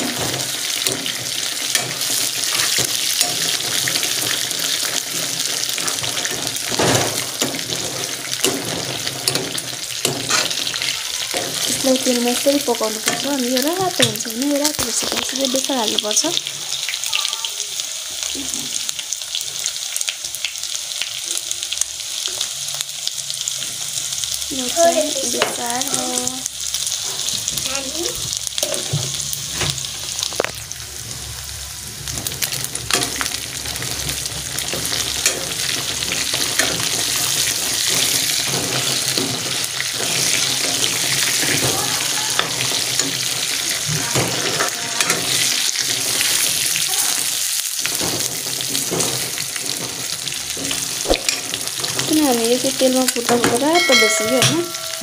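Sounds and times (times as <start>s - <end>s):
metal ladle scraping pan: 0.0s - 14.3s, 32.4s - 46.7s
meat and onion sizzling in oil: 0.0s - 55.0s.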